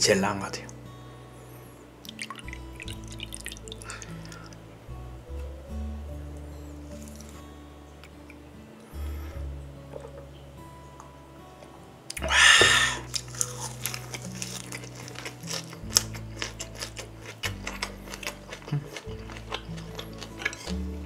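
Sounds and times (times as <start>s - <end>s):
wet chewing clicks: 2.0s - 4.6s, 13.1s - 21.0s
background music with bass line: 12.1s - 21.0s
loud breathy exhale: 12.2s - 13.1s.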